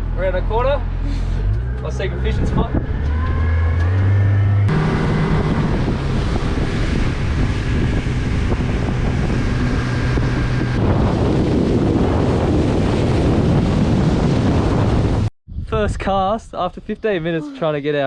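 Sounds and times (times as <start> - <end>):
boat motor humming: 0.0 - 15.3
wind buffeting microphone: 1.4 - 17.2
water rushing past hull: 4.7 - 15.3.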